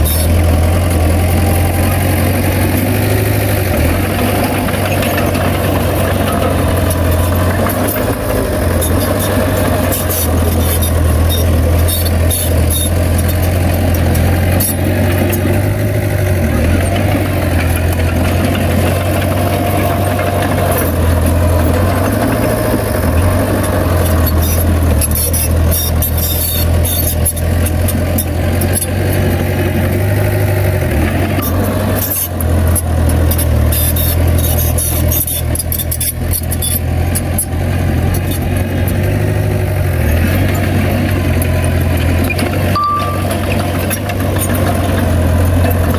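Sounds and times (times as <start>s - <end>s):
bulldozer diesel engine drone: 0.0s - 45.9s
metallic clicks and knocks: 42.2s - 45.9s.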